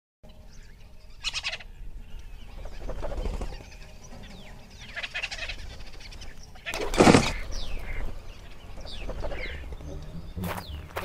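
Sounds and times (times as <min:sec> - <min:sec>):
bird rattling call: 0:04.7 - 0:09.8.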